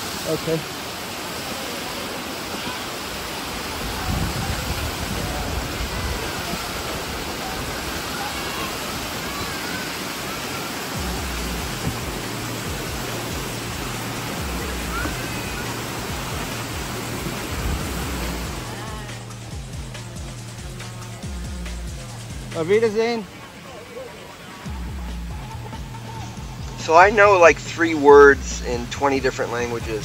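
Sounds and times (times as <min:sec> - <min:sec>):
river water rushing: 0:00.0 - 0:30.0
low rumbling: 0:10.9 - 0:23.0, 0:24.7 - 0:30.0.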